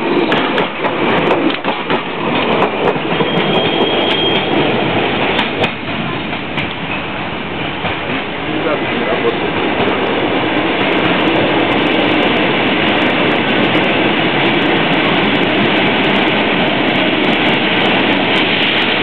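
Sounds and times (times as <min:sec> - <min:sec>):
train wheels clattering on rails: 0:00.0 - 0:19.0.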